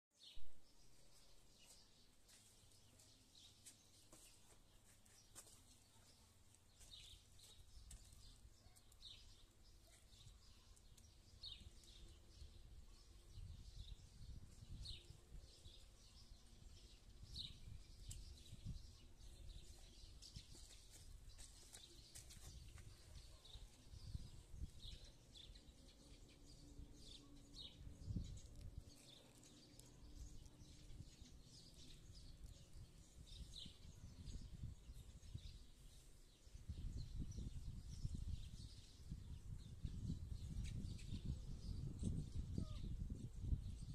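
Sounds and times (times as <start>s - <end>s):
faint bird chirps: 40.5s - 43.0s.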